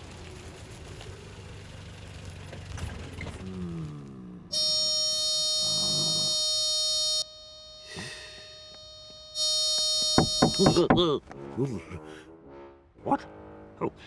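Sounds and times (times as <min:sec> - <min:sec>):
electronic buzzer blasts: 0:04.5 - 0:11.0.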